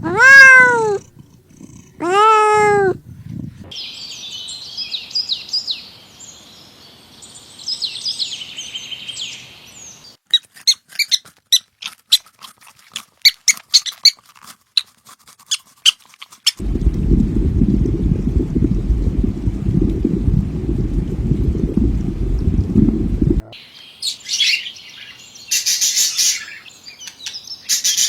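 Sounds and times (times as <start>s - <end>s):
birds twittering: 23.5s - 28.0s.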